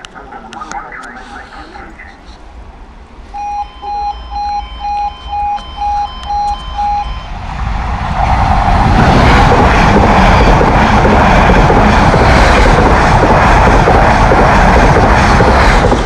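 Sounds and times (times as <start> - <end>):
level crossing warning alarm: 0.5 - 2.2, 3.3 - 7.4
train wheels rushing on rail: 5.3 - 16.0.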